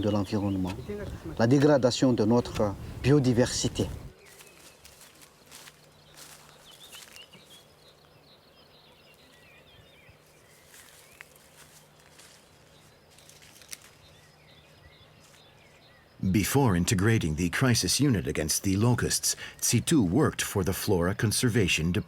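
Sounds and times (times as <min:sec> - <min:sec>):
distant birds chirping: 0:00.0 - 0:22.0.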